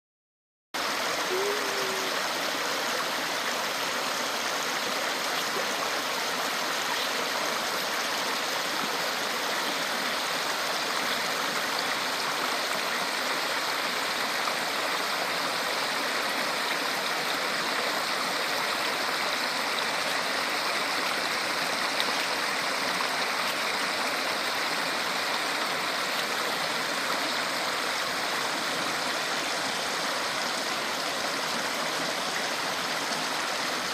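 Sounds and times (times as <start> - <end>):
small waterfall splashing: 0.8 - 33.9.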